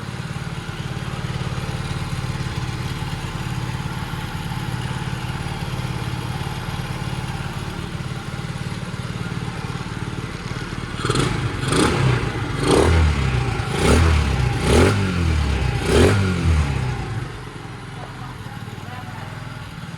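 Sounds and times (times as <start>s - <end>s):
motorbike engine idling and revving: 0.0s - 19.9s.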